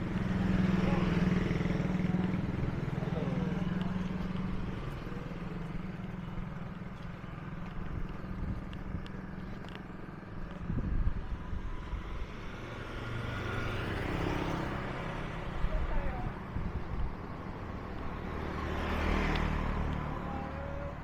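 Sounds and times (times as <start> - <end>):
engine humming: 0.0 - 15.5.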